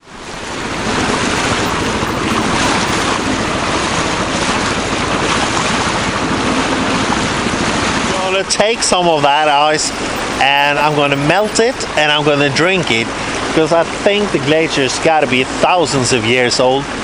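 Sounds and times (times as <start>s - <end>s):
loud rushing noise: 0.0s - 5.4s.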